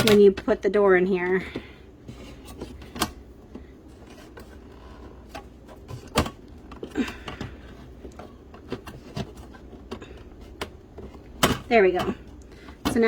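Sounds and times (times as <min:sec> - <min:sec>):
plastic clicks and knocks: 0:02.6 - 0:13.0.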